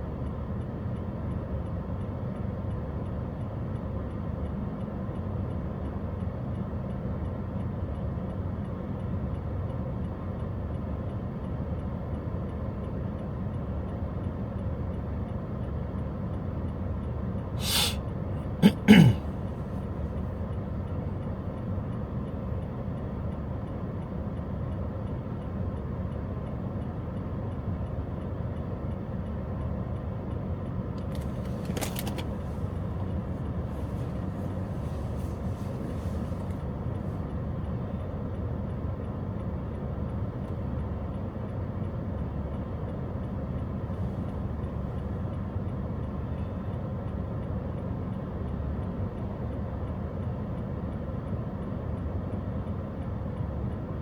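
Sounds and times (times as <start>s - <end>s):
car road and engine noise: 0.0s - 54.0s
short hiss: 17.6s - 18.0s.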